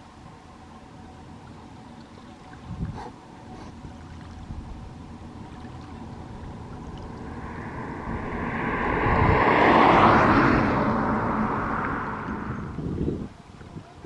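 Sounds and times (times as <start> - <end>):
vehicle passing by: 5.1 - 13.0.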